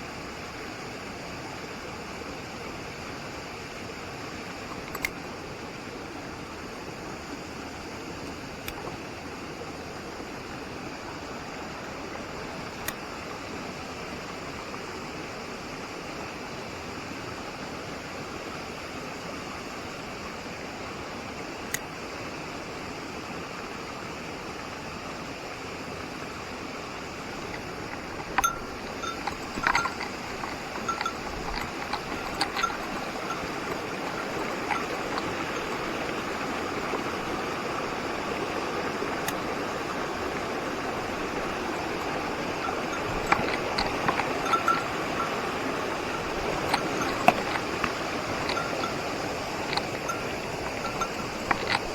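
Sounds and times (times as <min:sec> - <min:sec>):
mountain stream rushing: 0:00.0 - 0:51.9
light metallic clinks: 0:27.3 - 0:38.0, 0:39.1 - 0:51.9.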